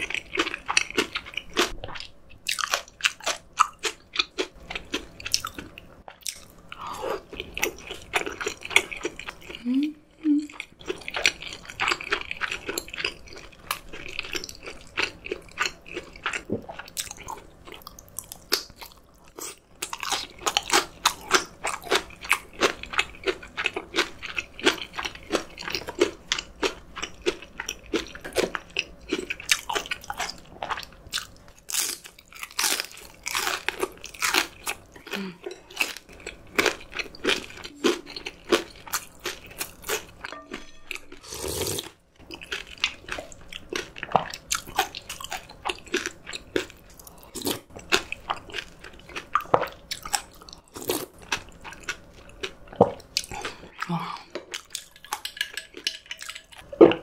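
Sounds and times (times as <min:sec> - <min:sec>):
crunchy chewing: 0:10.5 - 0:40.3.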